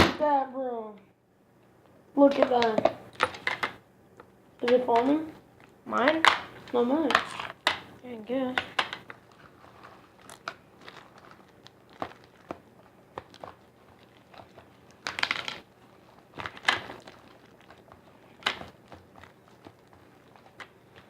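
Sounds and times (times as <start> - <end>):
slime crackling bursts: 6.0 - 21.0
hands squelching sticky slime: 9.0 - 21.0.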